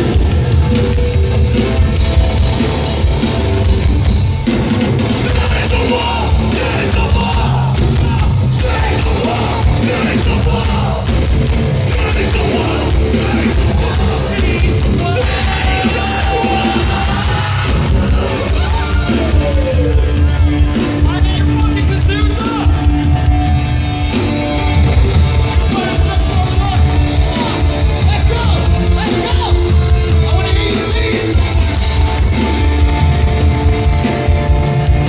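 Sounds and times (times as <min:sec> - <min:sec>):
drums: 0:00.0 - 0:35.0
heavy distorted guitars: 0:00.0 - 0:35.0
yelled vocals: 0:02.0 - 0:35.0.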